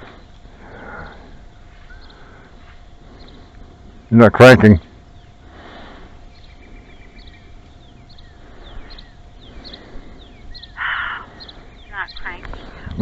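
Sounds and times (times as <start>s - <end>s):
faint steady hum: 0.0s - 13.0s
small bird chirping: 0.8s - 2.4s, 3.2s - 4.2s, 6.3s - 12.9s.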